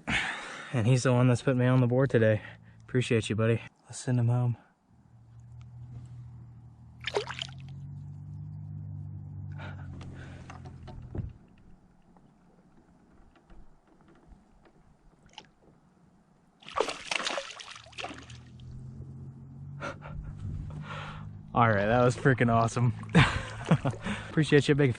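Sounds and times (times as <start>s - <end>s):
loud fish splash: 7.0s - 7.7s, 16.6s - 18.5s
water sloshing and splashing: 7.0s - 7.9s, 15.0s - 15.8s, 16.6s - 18.7s, 22.9s - 24.4s.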